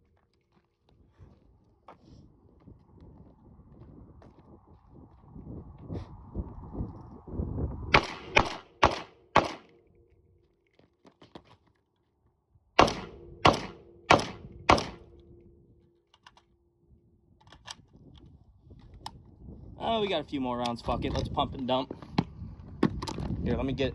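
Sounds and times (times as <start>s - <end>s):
rifle shots: 7.9s - 9.8s, 12.8s - 15.2s.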